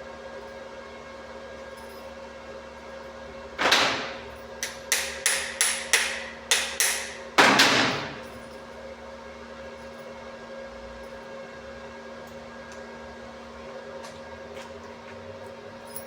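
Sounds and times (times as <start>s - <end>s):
hammer striking metal: 3.6s - 8.6s.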